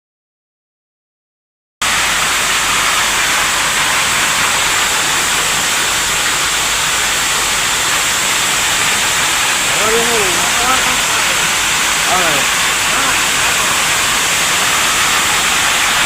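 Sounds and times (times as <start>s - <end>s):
heavy rain pouring: 1.8s - 16.0s.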